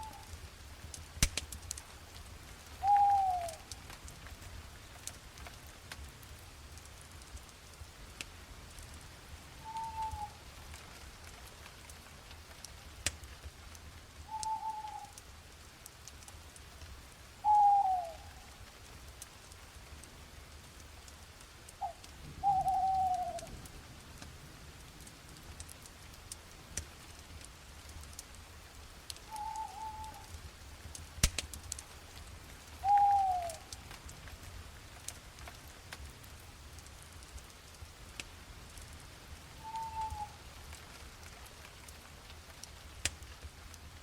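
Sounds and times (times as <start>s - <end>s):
faint crackles: 0.0s - 44.0s
sharp pop: 1.2s - 1.5s, 31.2s - 31.5s
bird calling: 2.8s - 3.6s, 9.6s - 10.4s, 14.3s - 15.1s, 17.4s - 18.4s, 21.8s - 23.5s, 29.3s - 30.3s, 32.8s - 33.7s, 39.6s - 40.4s.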